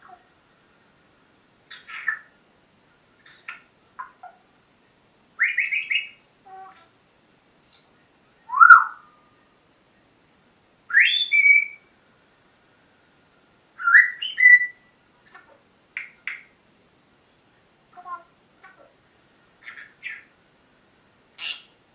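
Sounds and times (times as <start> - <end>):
parrot whistling and chirping: 5.4 - 6.2, 7.6 - 9.1, 10.9 - 11.8, 13.8 - 14.9.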